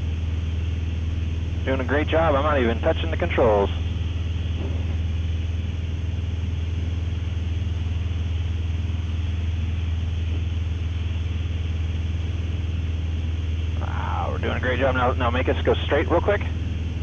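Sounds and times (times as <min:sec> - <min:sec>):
airplane engine and propeller drone: 0:00.0 - 0:17.0.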